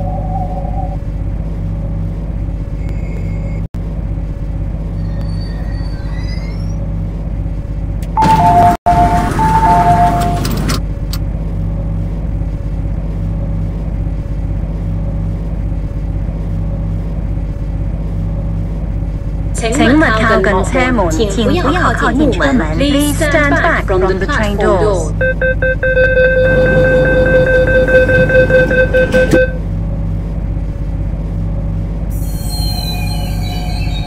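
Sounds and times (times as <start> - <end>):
electric train low rumble: 0.0 - 34.0
two-note door chime: 8.2 - 10.5.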